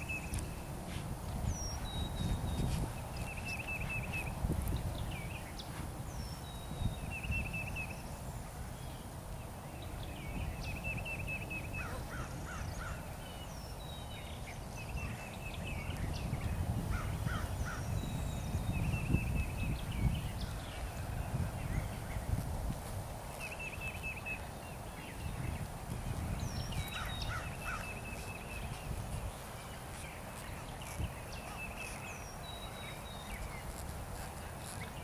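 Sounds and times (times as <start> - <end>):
birds calling: 9.8 - 22.4, 23.3 - 35.0.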